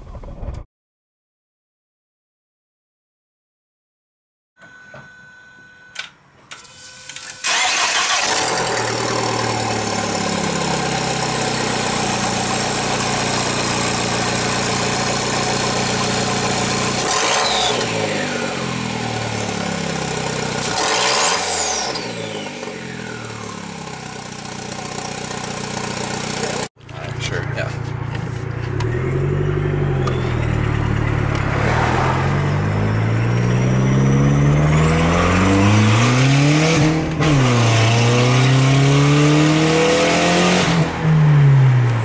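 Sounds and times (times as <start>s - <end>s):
engine revving: 7.4s - 27.1s, 28.5s - 42.0s
car engine idling loud: 24.1s - 27.8s.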